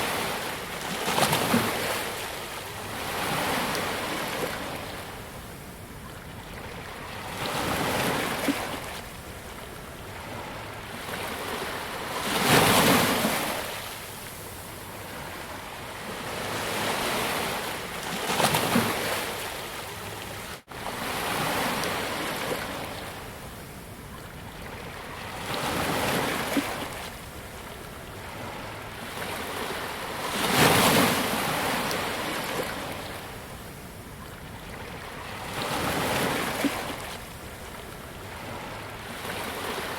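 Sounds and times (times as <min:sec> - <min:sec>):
ocean waves breaking: 0:06.6 - 0:23.4.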